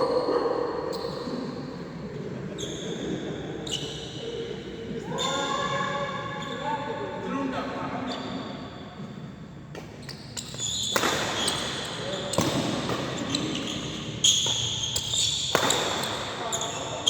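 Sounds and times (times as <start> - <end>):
crowd noise in hall: 0.0 - 17.0
racket hitting shuttlecock: 9.7 - 16.3.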